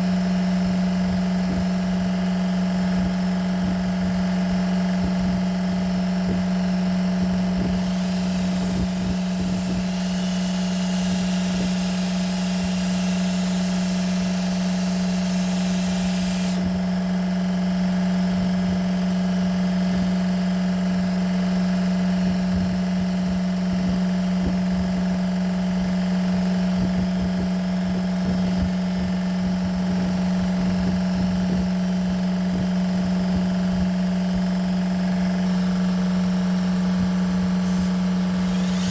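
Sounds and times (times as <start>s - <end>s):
motor humming: 7.5s - 19.2s, 35.8s - 38.9s.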